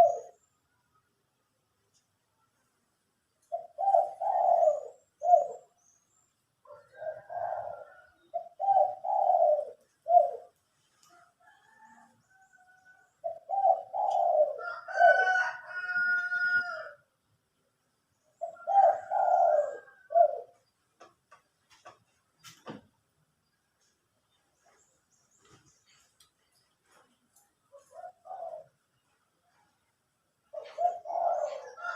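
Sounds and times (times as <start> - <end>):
doves cooing: 0.0 - 0.4, 3.4 - 5.8, 6.6 - 17.0, 18.4 - 20.6, 27.7 - 29.7, 30.5 - 31.9.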